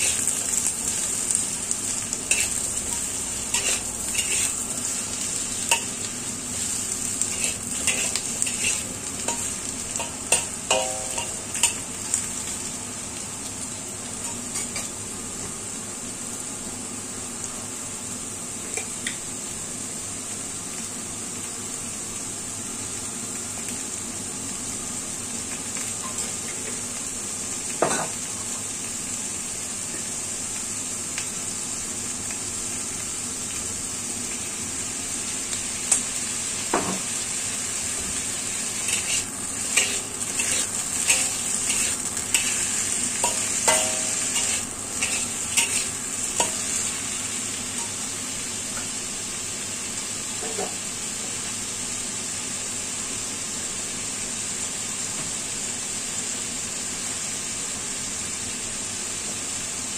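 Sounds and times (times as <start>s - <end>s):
spatula scraping a wok: 0.0s - 0.4s, 2.3s - 11.8s, 38.6s - 47.0s
food sizzling in a wok: 0.0s - 59.9s.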